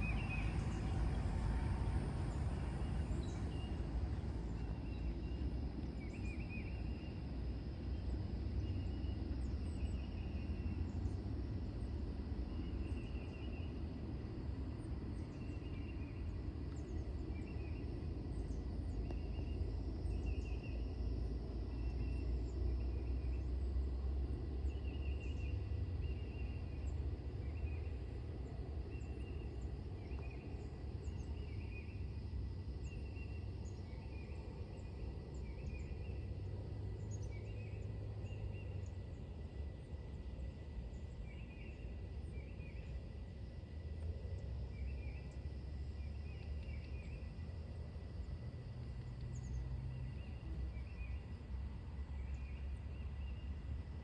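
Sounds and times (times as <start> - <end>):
steady low rumble: 0.0 - 54.0
small bird chirping trills: 24.7 - 53.8.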